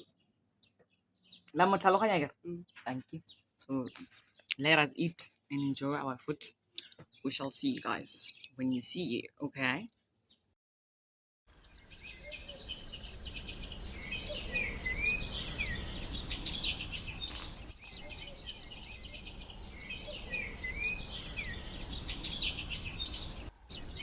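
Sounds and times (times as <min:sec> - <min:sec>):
birds chirping: 0:11.5 - 0:24.0.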